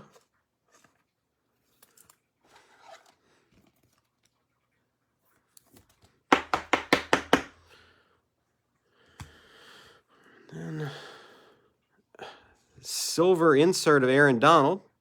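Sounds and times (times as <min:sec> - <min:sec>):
quick sharp knocks: 0:06.3 - 0:07.5.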